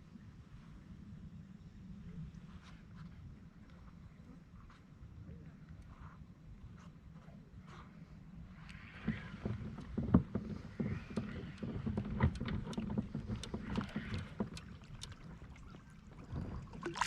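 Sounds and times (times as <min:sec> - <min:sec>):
wind rumble on microphone: 0:00.0 - 0:17.0
knocks and clicks on kayak: 0:09.0 - 0:15.4
water sloshing: 0:09.6 - 0:17.0.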